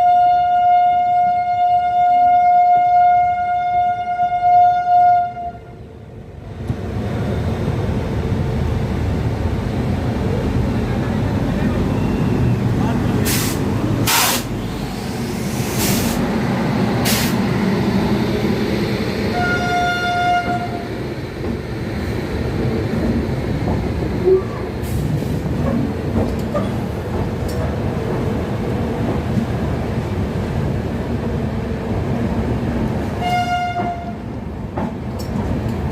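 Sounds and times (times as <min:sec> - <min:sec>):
train horn: 0:00.0 - 0:05.8, 0:19.3 - 0:20.8, 0:33.2 - 0:34.2
rumble of railway trains: 0:00.0 - 0:35.9.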